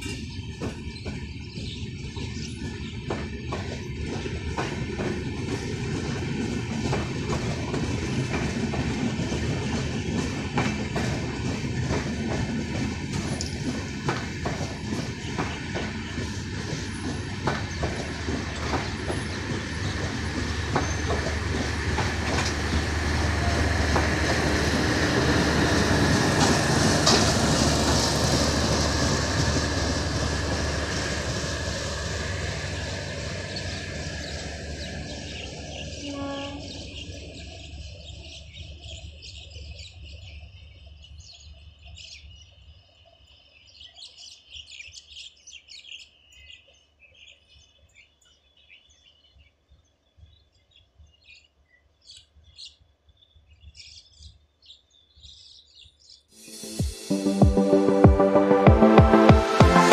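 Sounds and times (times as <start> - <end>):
birds chirping: 0.0 - 57.2
wheels clattering over rail joints: 2.4 - 29.8
train horn: 35.9 - 36.9.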